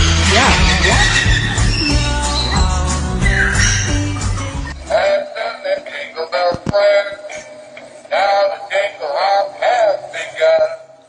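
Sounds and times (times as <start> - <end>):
pop song with bass line: 0.0 - 5.0.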